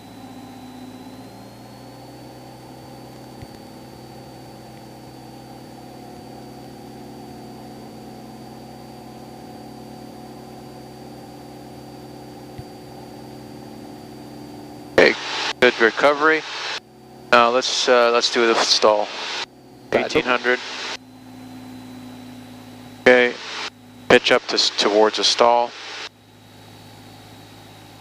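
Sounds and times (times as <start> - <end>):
light aircraft engine running: 0.0 - 28.0
thin high whine: 10.6 - 28.0.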